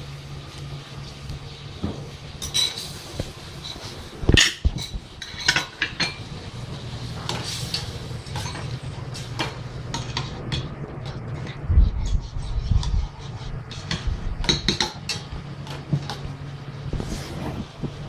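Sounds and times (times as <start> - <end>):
metal utensils clinking on cookware: 2.4 - 6.3, 7.3 - 12.2, 13.7 - 16.2
low hum: 6.1 - 18.0.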